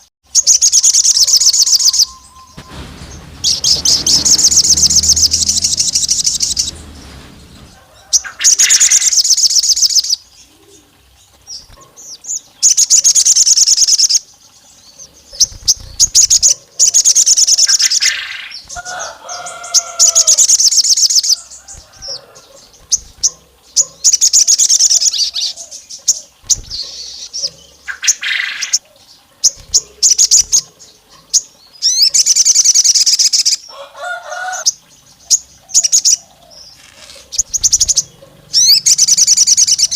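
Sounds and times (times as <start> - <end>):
bird singing rapid trills: 0.0 - 33.7, 34.6 - 39.9
bird chirps and warbled notes: 0.8 - 7.7, 37.0 - 39.9.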